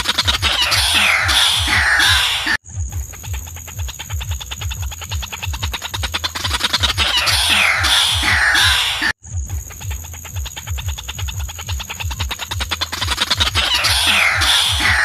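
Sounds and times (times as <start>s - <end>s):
bird higher falling calls: 0.0s - 2.6s, 5.7s - 9.1s, 12.4s - 15.0s.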